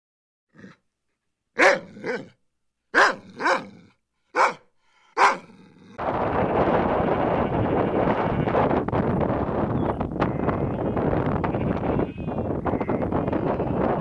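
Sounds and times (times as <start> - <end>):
dog barking: 1.6 - 5.6
wind on the microphone: 6.0 - 14.0.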